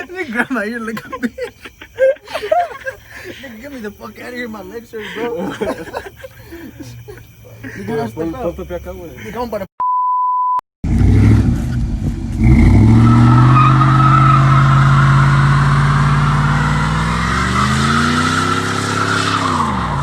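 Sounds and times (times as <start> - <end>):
truck engine revving: 10.8 - 20.0.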